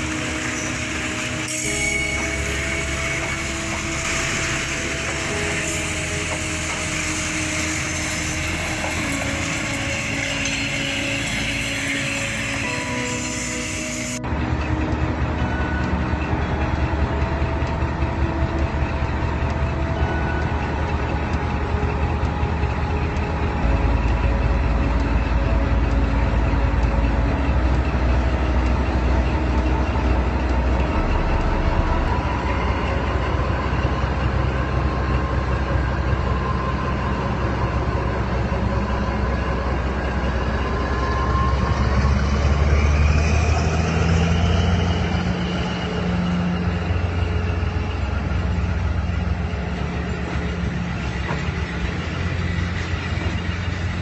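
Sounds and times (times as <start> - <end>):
diesel locomotive engine rumbling: 0.0 - 54.0.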